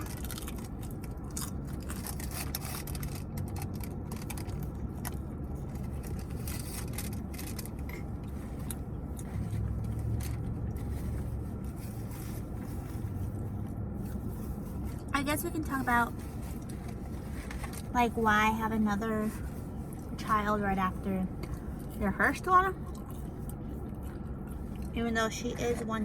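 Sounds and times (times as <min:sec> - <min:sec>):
person chewing food: 0:00.0 - 0:15.1, 0:22.8 - 0:25.0
wrappers rustling: 0:00.0 - 0:18.3
low rumble: 0:00.0 - 0:26.0.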